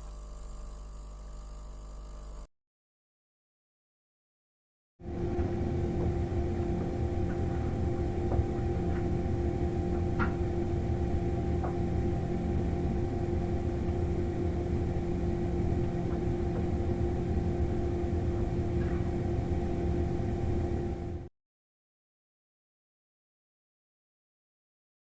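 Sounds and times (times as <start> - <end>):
machine hum: 0.0 - 2.5, 5.0 - 21.3.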